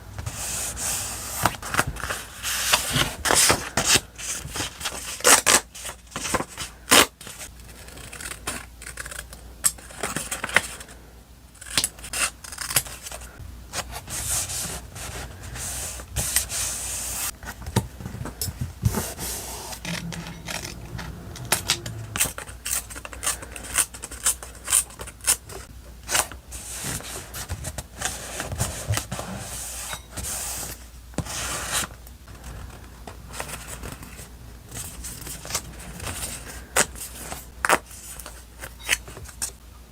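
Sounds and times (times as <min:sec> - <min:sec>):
paper and stickers rustling: 0:12.7 - 0:25.1.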